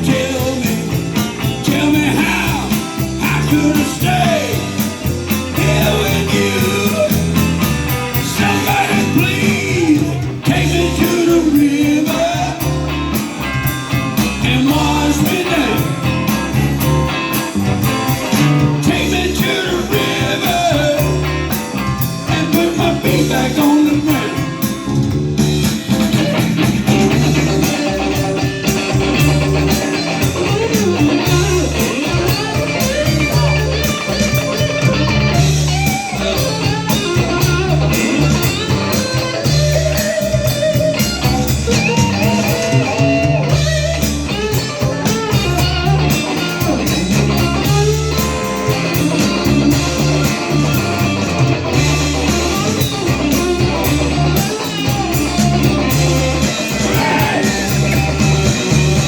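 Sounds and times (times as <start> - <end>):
bass line: 0.0 - 59.0
drum kit: 0.0 - 59.0
guitar lines: 0.0 - 59.0.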